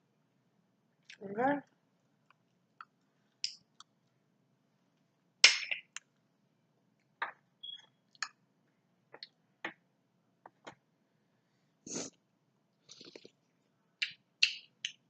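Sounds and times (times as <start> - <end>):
mouth smacks and clicks: 2.2 - 4.0, 14.0 - 15.0
sharp crack: 5.4 - 5.8.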